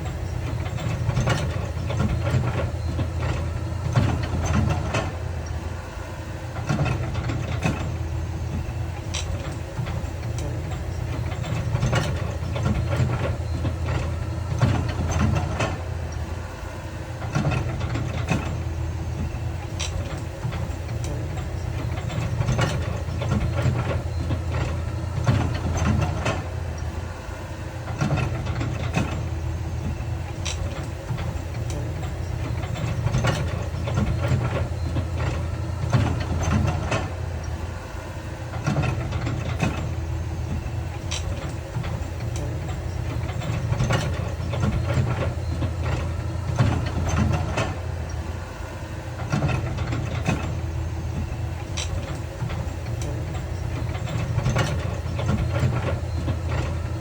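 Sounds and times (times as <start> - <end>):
heavy diesel machinery rumbling: 0.0 - 57.0.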